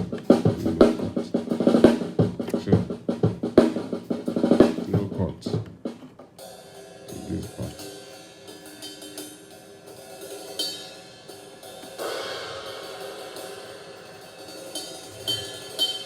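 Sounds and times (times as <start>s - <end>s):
faint band playing: 0.0s - 6.2s, 7.1s - 7.8s
cymbal crash: 6.4s - 16.0s
cymbals and hi-hat ringing: 6.4s - 16.0s.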